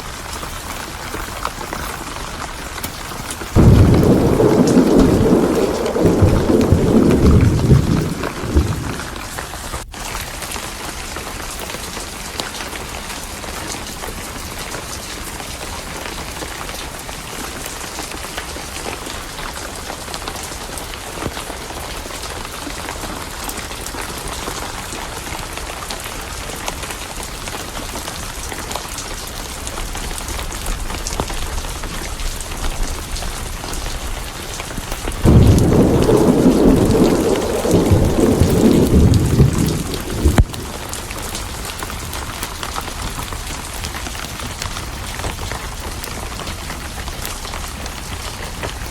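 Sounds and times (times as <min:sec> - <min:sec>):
heavy rain: 0:00.0 - 0:48.9
deep thunder rumble: 0:03.5 - 0:09.8, 0:29.7 - 0:42.4.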